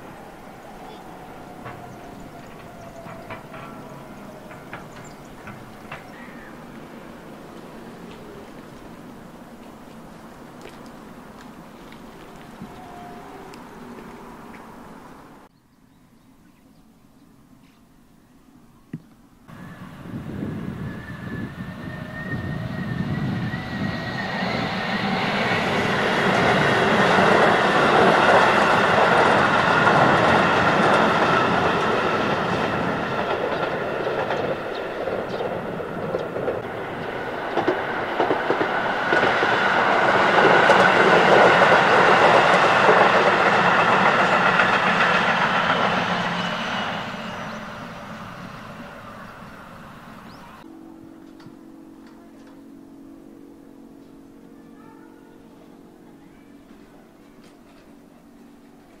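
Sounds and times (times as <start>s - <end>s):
train wheels clattering over rail joints: 1.5s - 9.0s, 26.3s - 47.6s
train motor whine: 19.5s - 53.2s.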